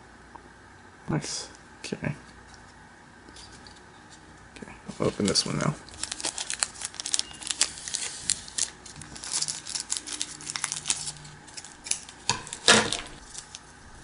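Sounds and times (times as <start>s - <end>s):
plastic wrapper crinkling: 4.9s - 13.8s.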